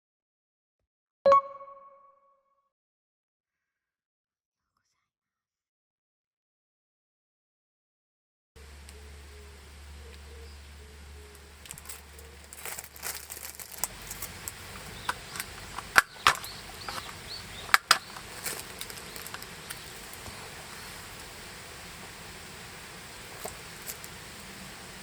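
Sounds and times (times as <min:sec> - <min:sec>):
rustling: 0:08.6 - 0:25.0
bird chirps: 0:08.7 - 0:25.0
clicks and knocks: 0:12.6 - 0:20.4.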